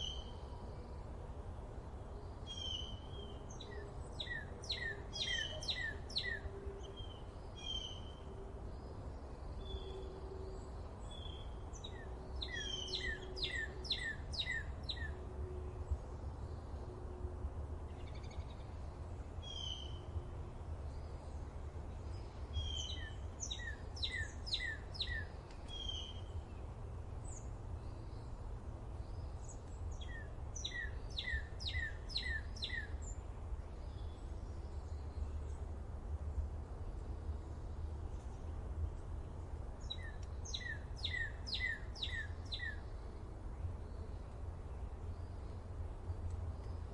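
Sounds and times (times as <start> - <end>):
bird chirps: 11.1 - 15.2, 19.4 - 20.0, 22.6 - 26.3, 29.1 - 33.2, 39.8 - 42.9.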